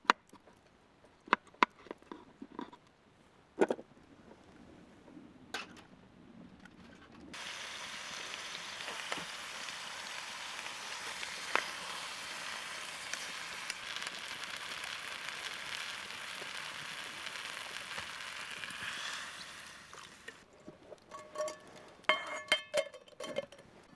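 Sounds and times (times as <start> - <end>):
food sizzling in a pan: 7.4 - 20.4
small pops and crackles: 7.4 - 22.1.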